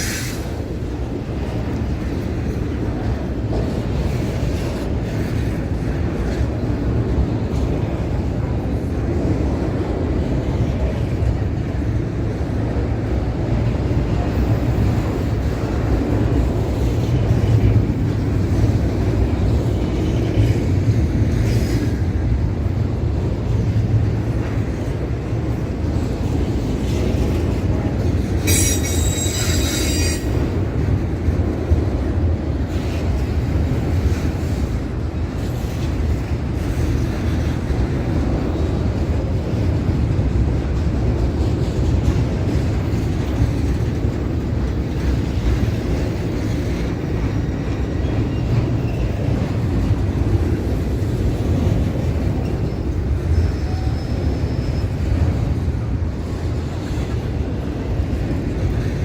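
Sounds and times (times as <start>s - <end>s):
train wheels rumbling on rail: 0.0s - 59.0s
high-pitched wheel squeal: 28.5s - 30.4s, 53.3s - 55.0s.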